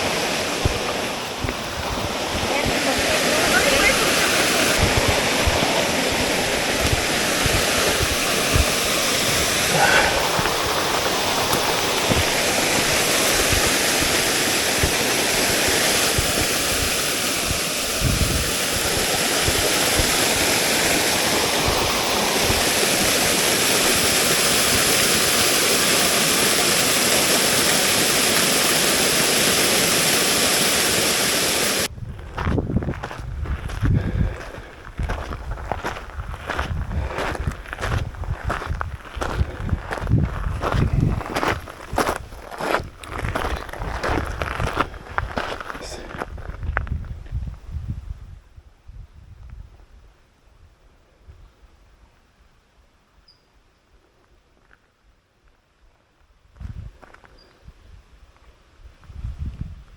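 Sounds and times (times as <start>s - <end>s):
small waterfall rushing: 0.0s - 31.9s.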